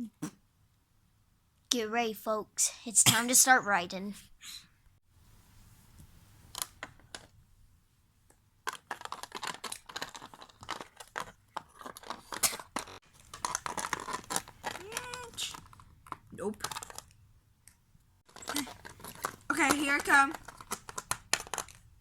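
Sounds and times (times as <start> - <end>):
plastic toys clicking and knocking: 6.5 - 7.4, 8.3 - 22.0.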